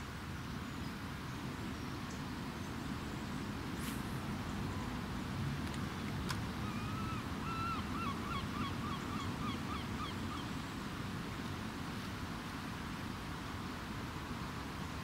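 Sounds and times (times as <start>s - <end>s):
steady low background noise: 0.0s - 15.0s
bird calling: 6.6s - 10.5s.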